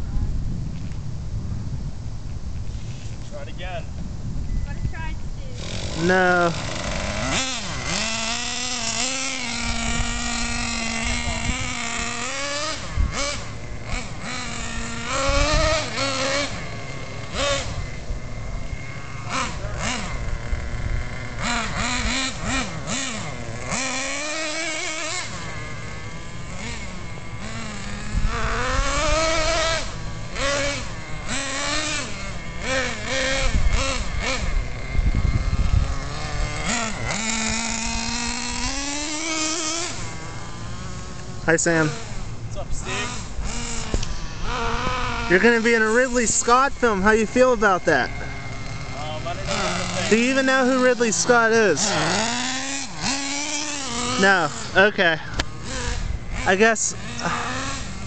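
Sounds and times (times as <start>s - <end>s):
rc car engine revving: 4.8s - 58.0s.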